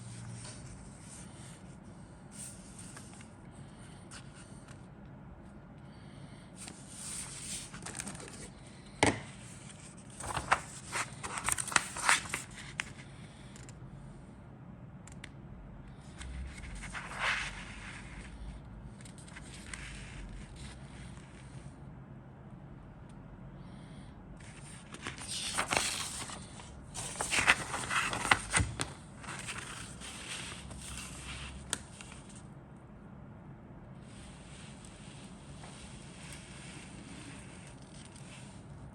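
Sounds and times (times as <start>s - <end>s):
packaging crinkling and rustling: 10.1s - 12.6s.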